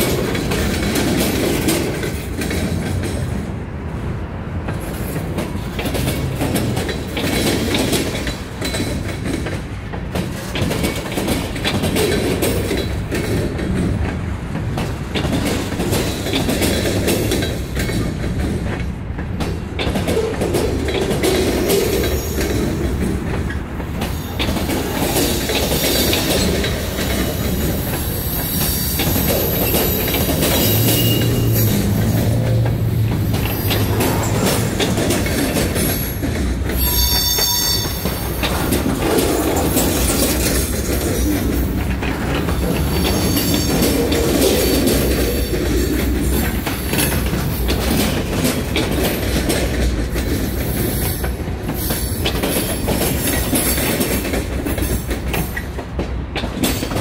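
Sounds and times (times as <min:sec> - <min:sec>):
train wheels clattering over rail joints: 0:00.0 - 0:57.0
train wheels squealing: 0:21.6 - 0:22.7, 0:24.0 - 0:32.1, 0:35.9 - 0:38.5, 0:42.8 - 0:45.6.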